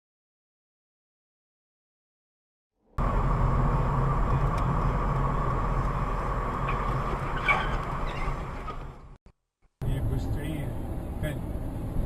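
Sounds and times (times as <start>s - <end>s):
road vehicle rumble: 2.8s - 9.2s, 9.8s - 12.0s.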